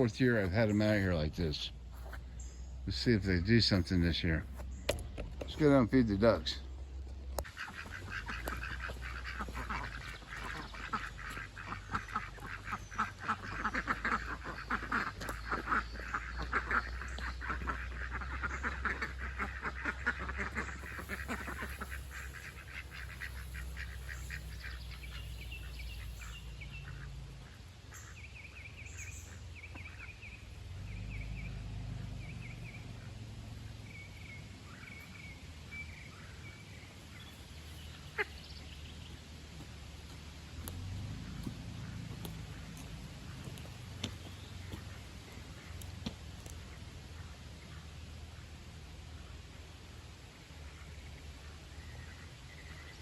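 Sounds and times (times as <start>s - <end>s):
ducks quacking: 0.0s - 49.3s.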